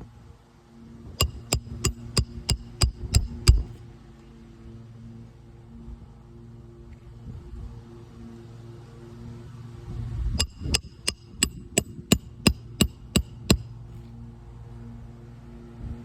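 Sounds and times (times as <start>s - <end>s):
hammer striking metal: 1.2s - 3.7s, 10.4s - 13.7s.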